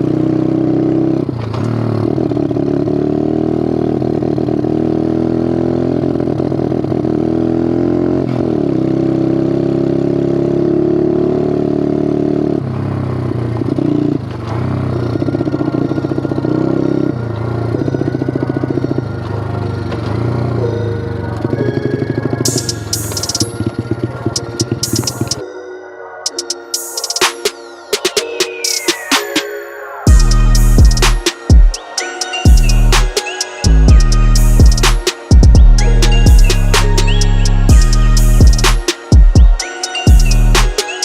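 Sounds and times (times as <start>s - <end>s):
pit bike engine revving: 0.0s - 20.6s.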